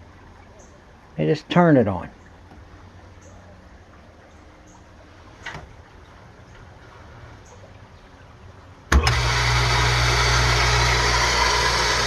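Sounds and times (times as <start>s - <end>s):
pump motor humming: 8.8s - 12.0s.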